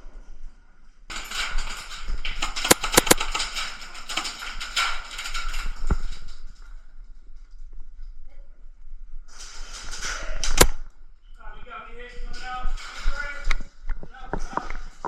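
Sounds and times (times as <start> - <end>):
airsoft guns firing: 2.5 - 3.4.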